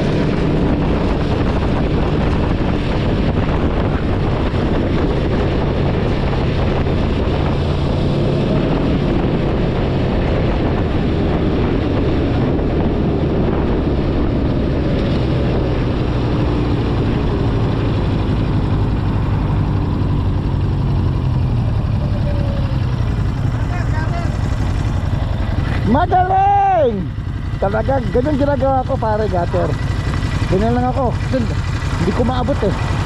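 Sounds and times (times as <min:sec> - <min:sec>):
wind noise on microphone: 0:00.0 - 0:23.6
motorcycle engine running: 0:00.0 - 0:33.0.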